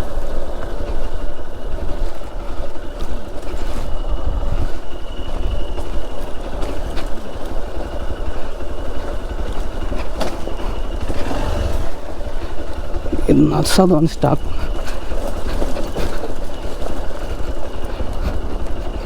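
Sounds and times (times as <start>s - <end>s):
motorcycle engine running: 5.2s - 19.0s.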